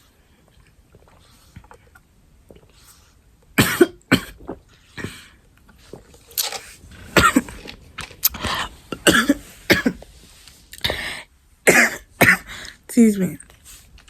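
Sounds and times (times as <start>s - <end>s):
person coughing: 3.6s - 4.4s, 7.1s - 7.6s, 8.4s - 10.0s, 11.7s - 12.6s.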